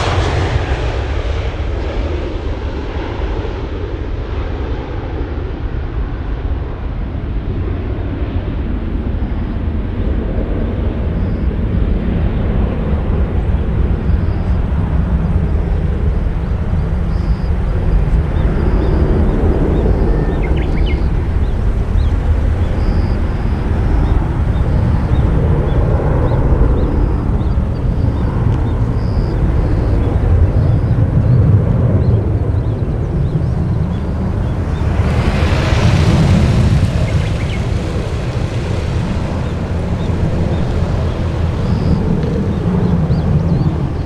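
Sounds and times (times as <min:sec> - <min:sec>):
jet engines rumbling: 0:00.0 - 0:44.0
rushing hiss: 0:32.8 - 0:44.0.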